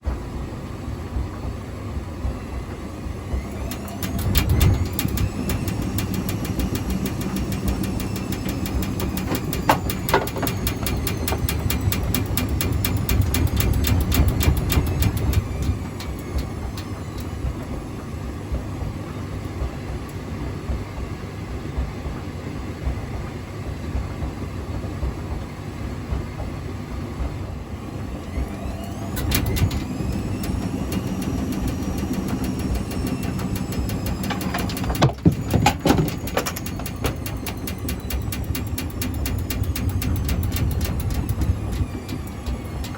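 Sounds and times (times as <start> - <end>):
washing machine motor whine: 0.0 - 42.9
washing machine drum knocking: 3.3 - 19.8, 28.0 - 42.9.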